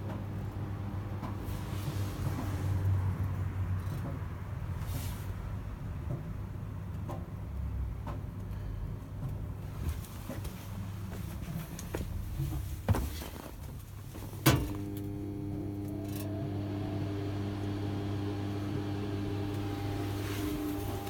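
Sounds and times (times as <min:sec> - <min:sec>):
welding power supply humming: 0:14.8 - 0:21.0.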